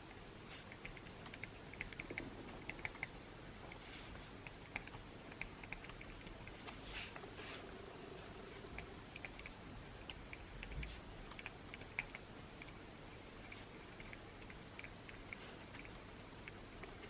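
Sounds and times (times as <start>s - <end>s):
pencil clicks and taps: 0.7s - 3.1s, 4.4s - 7.2s.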